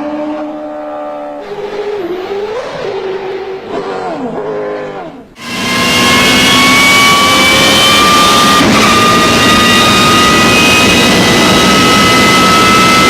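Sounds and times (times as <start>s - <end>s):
race car engine revving: 0.0s - 13.0s
gearbox whine: 5.1s - 13.0s.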